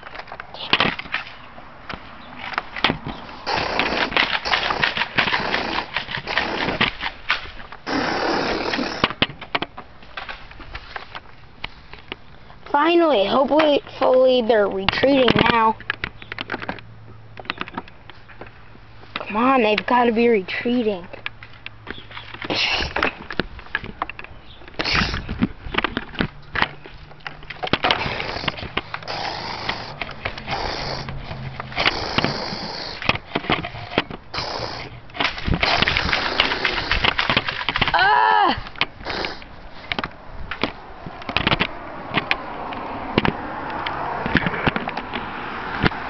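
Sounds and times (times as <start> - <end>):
knocks and clicks of gear: 14.8 - 19.9, 21.1 - 38.0, 38.6 - 46.0
wavering voice-like cry: 37.9 - 38.8.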